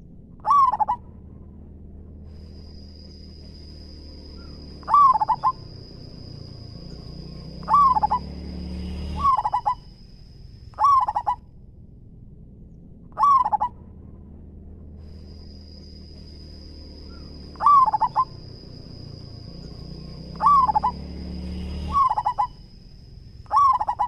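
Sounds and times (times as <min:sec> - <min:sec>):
dove cooing: 0:00.4 - 0:01.0, 0:04.4 - 0:06.3, 0:07.0 - 0:08.4, 0:09.0 - 0:09.9, 0:10.8 - 0:11.4, 0:13.2 - 0:13.8, 0:17.1 - 0:19.0, 0:20.2 - 0:21.0, 0:21.9 - 0:22.6, 0:23.5 - 0:24.0.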